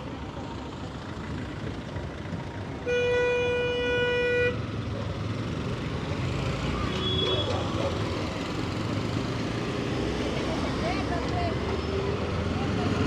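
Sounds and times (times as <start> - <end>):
low rumble of street traffic: 0.0 - 13.0
vehicle horn blast: 2.8 - 4.6.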